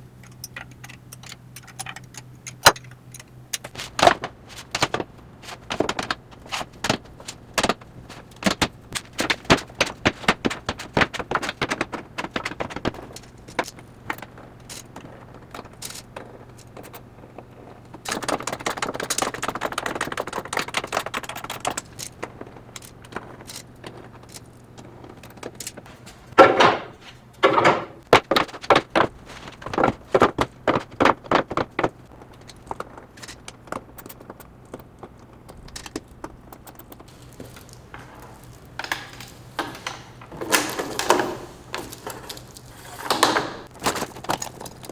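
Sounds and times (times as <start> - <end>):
tools and metal parts clicking: 0.2 - 3.8, 36.6 - 44.9
knocks and clatter: 25.8 - 32.0, 37.1 - 44.5.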